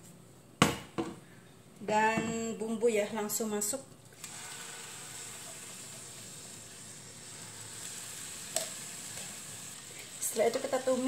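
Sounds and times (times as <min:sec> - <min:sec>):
spice paste sizzling in oil: 0:04.2 - 0:11.0.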